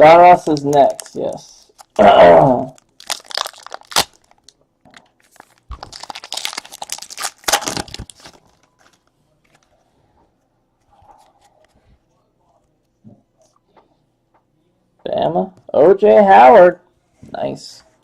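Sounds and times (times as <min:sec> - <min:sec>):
wrapper crinkling and tearing: 0:00.3 - 0:02.0, 0:02.7 - 0:09.6.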